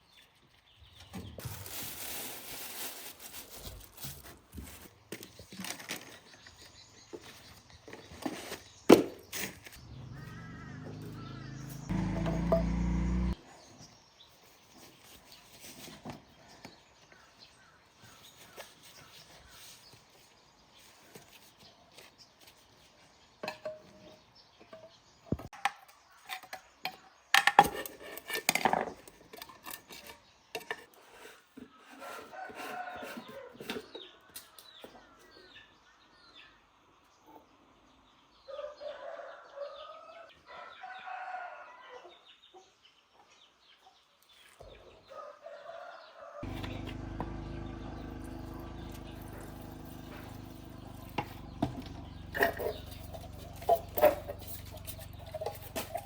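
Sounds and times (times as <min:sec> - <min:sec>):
rooster crowing: 0:10.0 - 0:13.4, 0:38.5 - 0:42.0, 0:45.1 - 0:48.3
low machine hum: 0:46.5 - 0:54.9.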